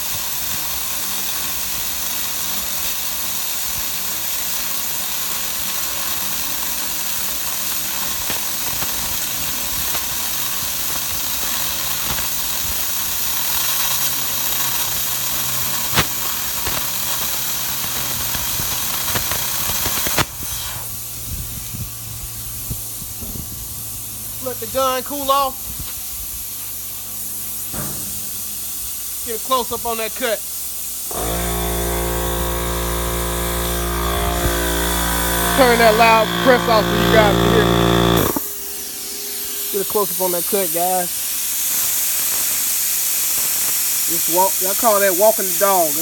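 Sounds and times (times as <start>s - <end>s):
plasma cutter hissing: 0.0s - 46.0s
air compressor humming: 8.7s - 43.6s
soft air hiss: 38.0s - 46.0s.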